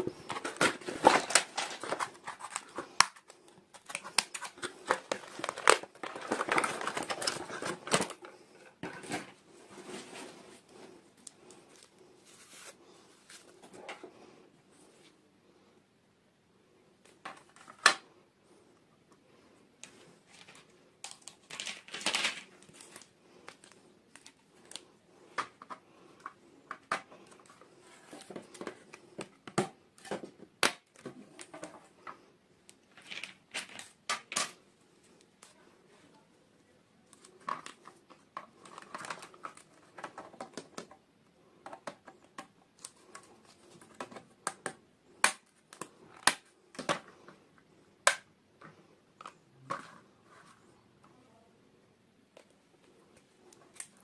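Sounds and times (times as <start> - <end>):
plastic wrapping crinkling: 0.0 - 8.3, 20.3 - 24.8.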